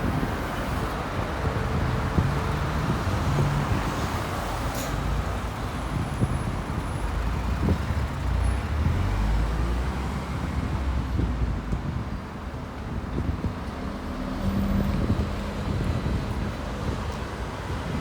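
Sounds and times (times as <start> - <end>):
traffic engine rumble: 0.0 - 18.0.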